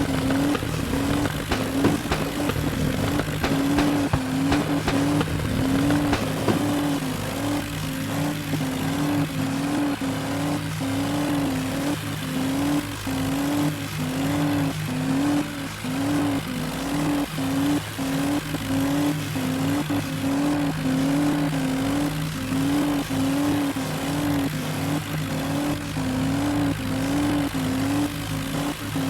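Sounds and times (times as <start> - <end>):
sharp clicks: 0.0 - 7.3
tractor engines under load: 0.0 - 7.9.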